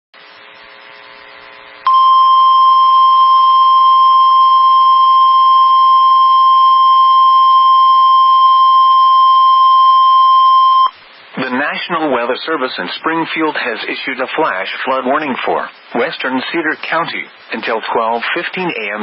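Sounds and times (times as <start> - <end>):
faint background noise: 0.2 - 19.0
loud high alarm beep: 1.9 - 11.0.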